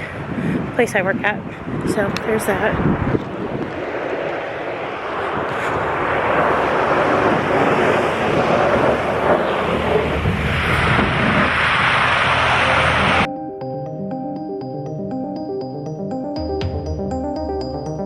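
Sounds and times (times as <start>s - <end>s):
storm wind on microphone: 0.0s - 13.3s.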